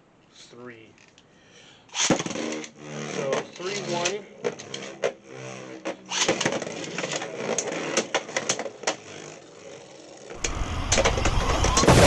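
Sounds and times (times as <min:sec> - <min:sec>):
spinning tops grinding: 0:01.9 - 0:12.0
plastic clicks and clatter: 0:05.8 - 0:09.1.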